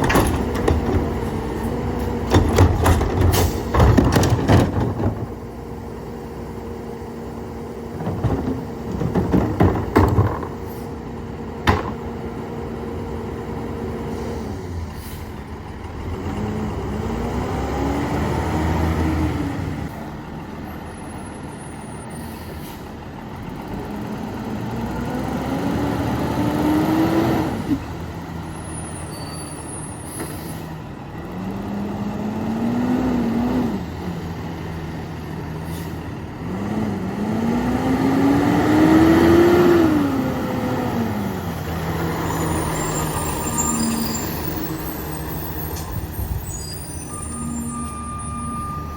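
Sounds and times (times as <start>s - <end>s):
garbage truck diesel engine revving: 0.0s - 20.6s, 30.7s - 48.9s.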